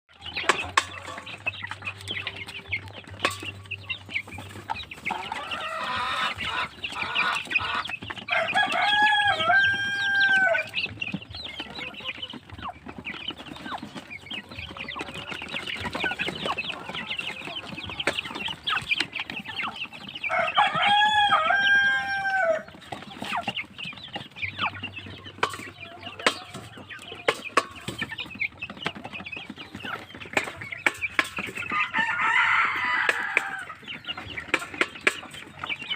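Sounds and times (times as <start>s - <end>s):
baby chicks peeping: 0.1s - 35.9s
rooster crowing: 8.3s - 10.7s, 20.3s - 22.7s, 31.8s - 33.7s.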